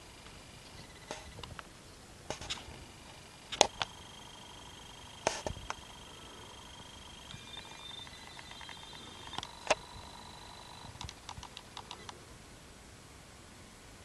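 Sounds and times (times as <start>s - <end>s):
small animals tapping and clicking: 7.2s - 9.9s, 10.8s - 12.2s.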